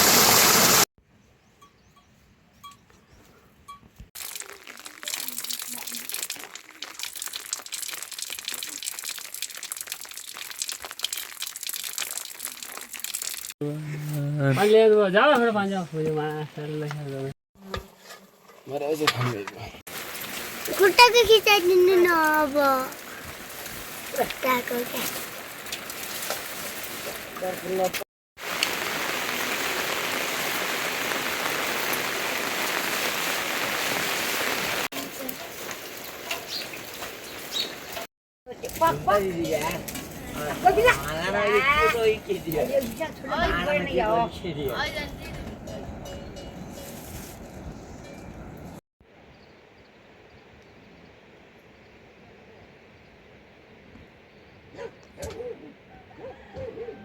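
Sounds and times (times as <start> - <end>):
rain pattering: 4.2 - 13.6, 19.9 - 45.6.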